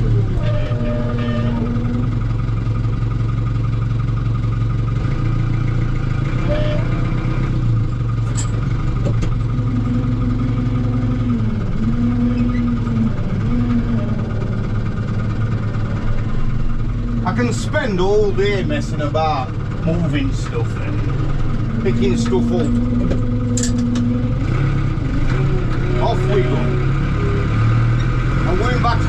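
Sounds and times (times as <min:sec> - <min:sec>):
tractor engine running: 0:00.0 - 0:29.0
whine dipping in pitch: 0:09.5 - 0:14.9.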